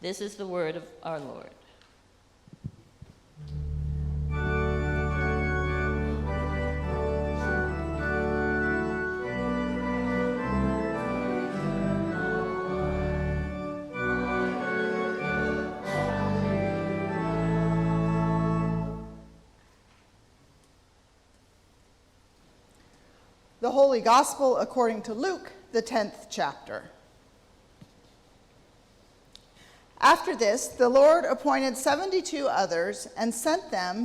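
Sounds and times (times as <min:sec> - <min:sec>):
church organ playing: 0:03.4 - 0:19.4.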